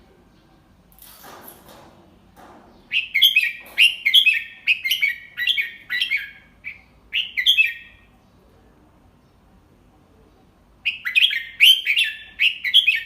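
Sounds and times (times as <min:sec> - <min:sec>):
bird singing warbling whistles: 0:10.9 - 0:13.0.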